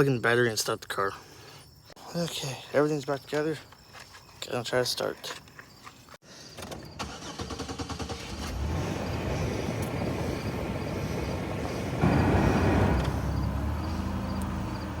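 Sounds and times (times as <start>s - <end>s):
car engine running and revving: 8.2s - 15.0s.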